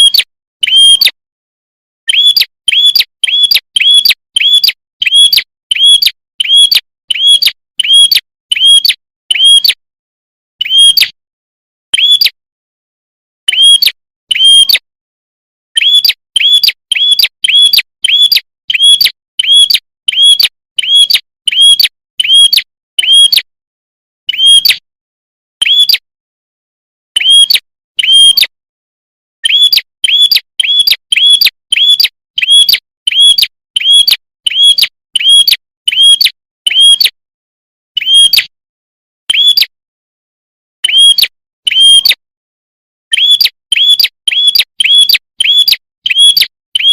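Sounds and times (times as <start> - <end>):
bird chirping high: 0.0 - 1.2, 2.0 - 9.8, 10.6 - 11.2, 11.9 - 12.4, 13.5 - 14.8, 15.7 - 23.4, 24.3 - 24.8, 25.6 - 26.0, 27.2 - 28.5, 29.4 - 37.2, 38.0 - 38.5, 39.3 - 39.7, 40.8 - 42.2, 43.1 - 46.9.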